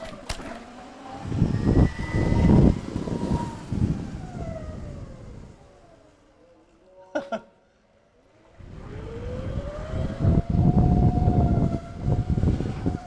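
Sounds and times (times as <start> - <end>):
electric bike motor whining: 0.0 - 6.2, 8.3 - 13.0
low rumble of the ride: 0.0 - 7.1, 8.2 - 13.0.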